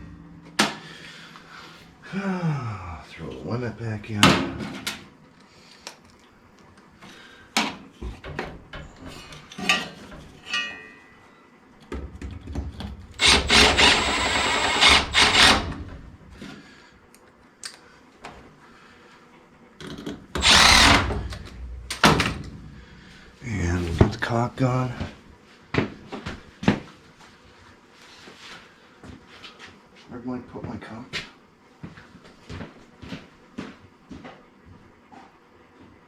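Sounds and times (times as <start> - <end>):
clinks and knocks of tools: 8.3 - 11.2
power driver running screws: 13.2 - 15.8, 20.4 - 21.6.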